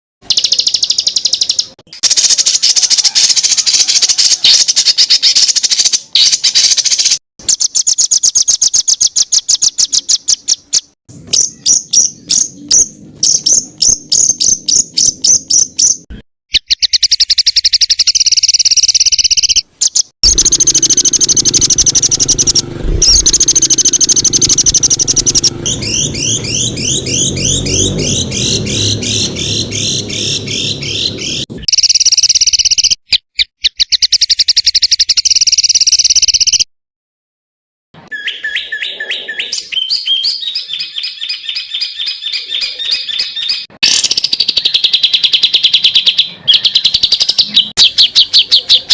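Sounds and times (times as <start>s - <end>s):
songbirds singing: 0.2s - 36.6s, 38.0s - 48.9s.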